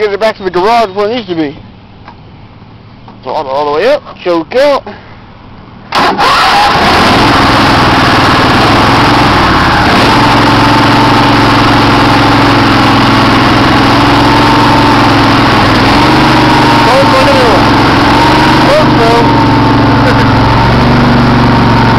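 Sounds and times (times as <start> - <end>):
riding mower engine running: 5.6 - 21.9.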